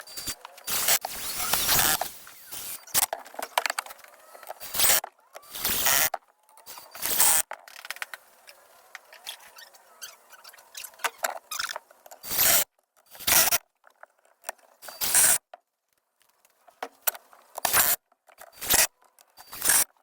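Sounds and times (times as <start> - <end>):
harsh wood scraping bursts: 0.0 - 13.6.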